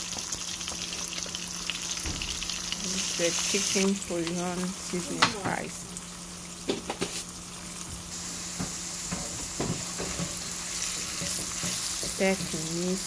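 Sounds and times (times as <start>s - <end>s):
vegetables sizzling in oil: 0.0s - 13.0s
spatula scraping a pan: 10.0s - 12.7s.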